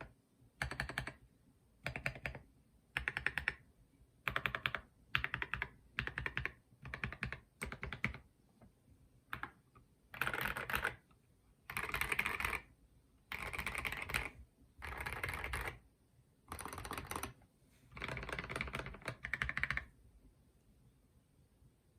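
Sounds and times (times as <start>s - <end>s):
mechanical keyboard typing: 0.0s - 1.2s, 1.8s - 3.6s, 4.2s - 8.3s, 9.3s - 11.0s, 11.7s - 12.7s, 13.3s - 15.8s, 16.5s - 20.0s.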